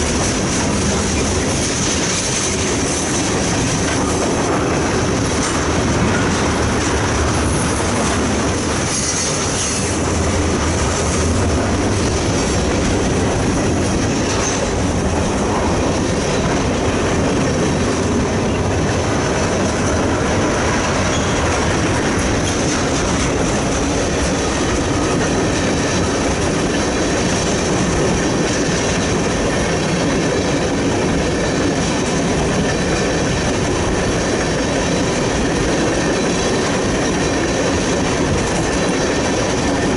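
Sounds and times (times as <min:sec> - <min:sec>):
wheels clattering on rails: 0:00.0 - 0:39.9
high wheel squeal: 0:21.0 - 0:21.6.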